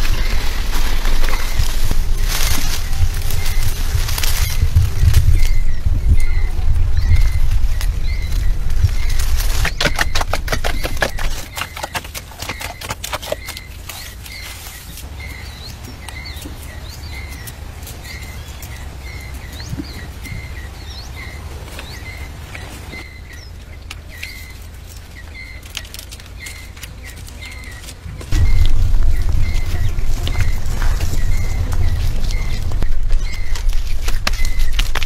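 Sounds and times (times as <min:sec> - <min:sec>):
low rumble: 0:00.0 - 0:11.6, 0:27.4 - 0:35.0
bird chirping: 0:00.0 - 0:35.0.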